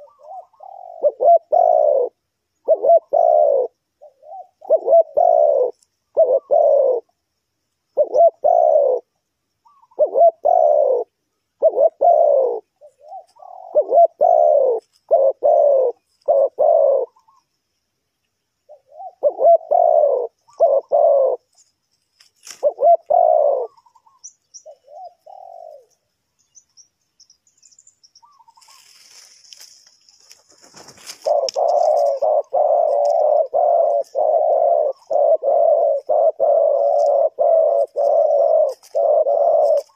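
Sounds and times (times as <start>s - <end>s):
dove cooing: 0.0s - 7.2s, 7.9s - 17.5s, 18.7s - 21.7s, 22.4s - 26.0s, 30.3s - 39.9s
brief rustle: 21.5s - 22.7s, 28.6s - 32.2s.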